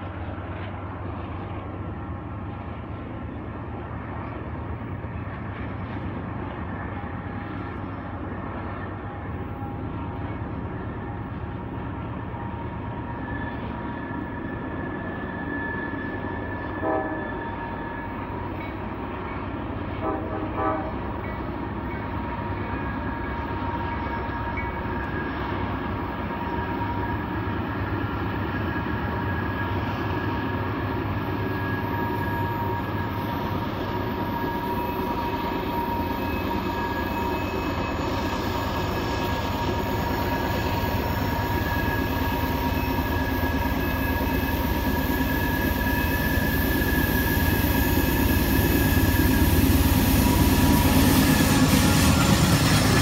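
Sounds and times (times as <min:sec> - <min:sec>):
diesel locomotive engines rumbling: 0:00.0 - 0:53.0
train horn short blasts: 0:15.7 - 0:18.4, 0:20.0 - 0:21.1
wheel flanges squealing: 0:26.6 - 0:53.0.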